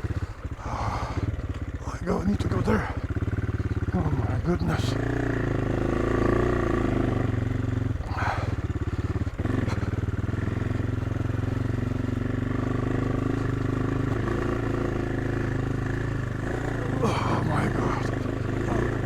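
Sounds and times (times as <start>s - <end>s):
motorcycle engine under load: 0.0s - 19.0s.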